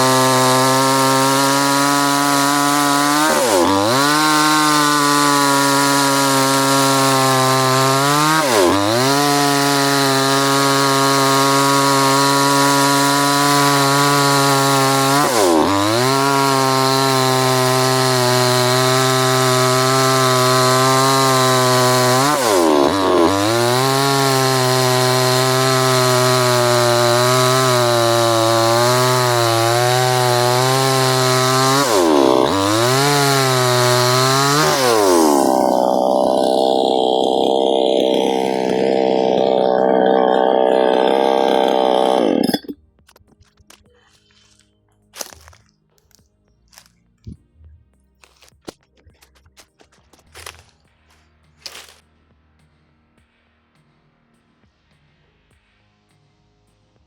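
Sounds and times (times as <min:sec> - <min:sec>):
chainsaw running at high revs: 0:00.0 - 0:42.8, 0:51.7 - 0:52.0.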